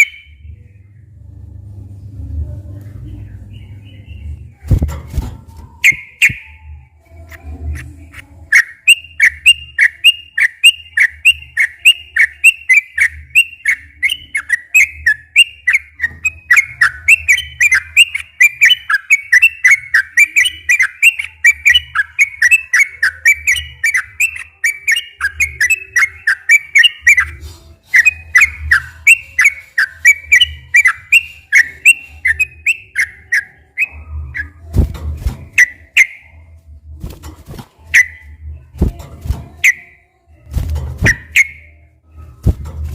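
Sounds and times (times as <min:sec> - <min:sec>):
bird singing bubbly whistles: 0:00.0 - 0:00.3, 0:05.8 - 0:06.6, 0:39.6 - 0:39.9.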